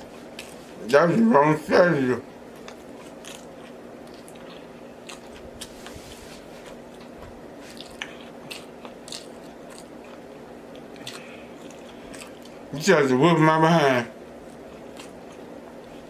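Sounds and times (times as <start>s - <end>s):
faint steady hum: 0.0s - 16.0s
chewing with wet smacking: 2.5s - 6.0s, 6.6s - 12.7s, 14.4s - 16.0s.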